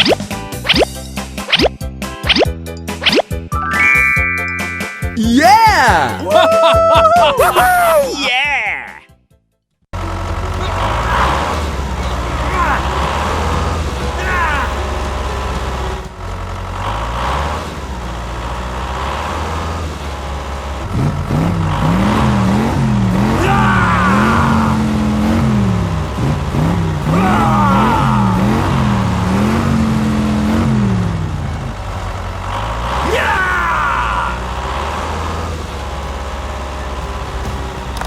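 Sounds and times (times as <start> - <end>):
small engine revving: 10.0 - 38.0.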